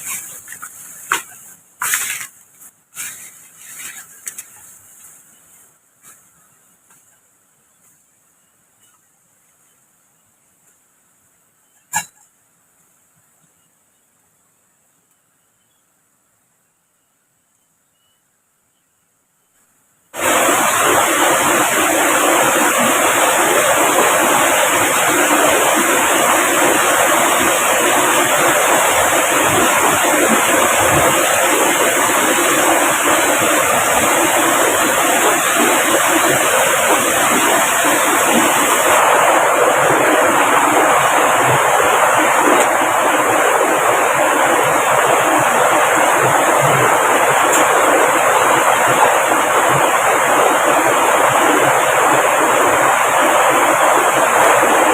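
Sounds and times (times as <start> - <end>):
rushing water: 20.2 - 54.9.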